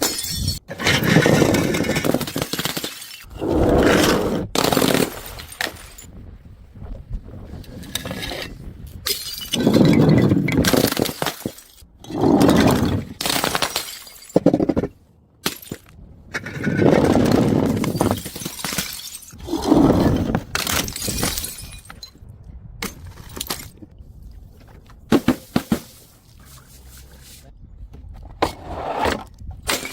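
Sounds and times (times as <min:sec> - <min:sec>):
breaking glass clattering: 0:00.0 - 0:00.6, 0:09.1 - 0:11.8, 0:13.2 - 0:14.6, 0:17.8 - 0:19.4, 0:20.5 - 0:22.2
glass bottles smashing: 0:00.0 - 0:03.3, 0:09.1 - 0:11.8, 0:12.7 - 0:14.6, 0:17.8 - 0:19.4, 0:20.0 - 0:22.2.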